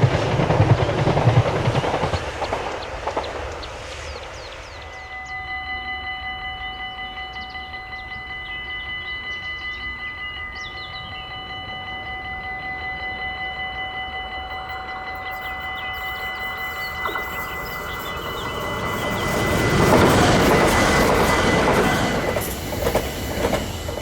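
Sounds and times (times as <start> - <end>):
level-crossing bell ringing: 4.9 - 24.0.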